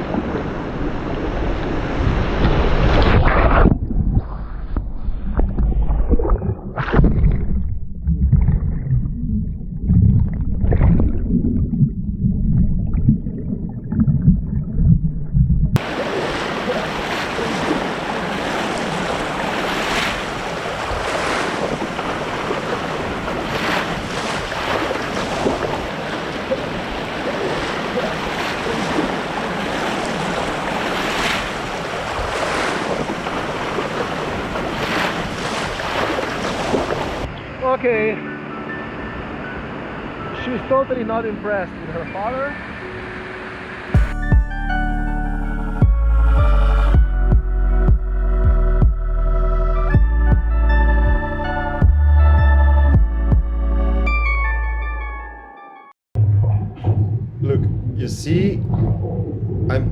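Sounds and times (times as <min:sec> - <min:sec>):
rush of white water: 0:00.0 - 0:03.8, 0:15.8 - 0:44.0.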